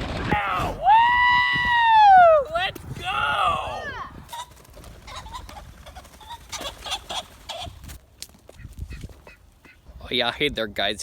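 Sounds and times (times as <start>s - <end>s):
pheasants calling: 4.3s - 10.0s.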